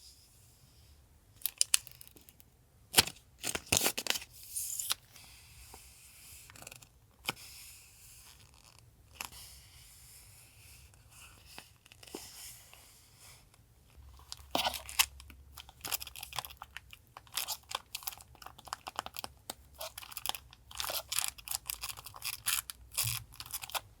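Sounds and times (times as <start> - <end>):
sticker packaging crinkling: 3.0 - 5.0, 14.2 - 23.9.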